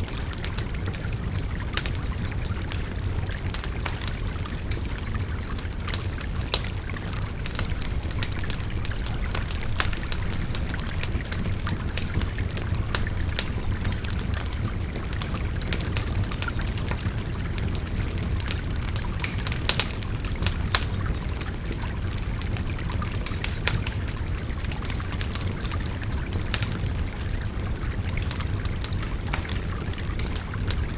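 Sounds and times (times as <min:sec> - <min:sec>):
wood fire crackling and popping: 0:00.0 - 0:30.9
river babbling: 0:01.9 - 0:15.4.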